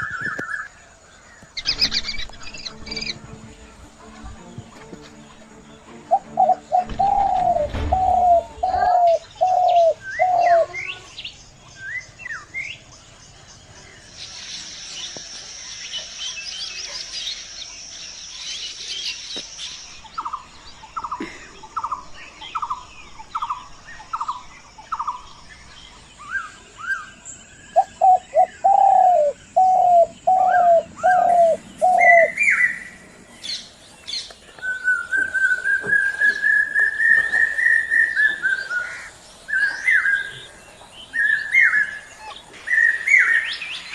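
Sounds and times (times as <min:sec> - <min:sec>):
hissing bird chatter: 0:00.0 - 0:43.9
high bird chirps: 0:01.6 - 0:03.4.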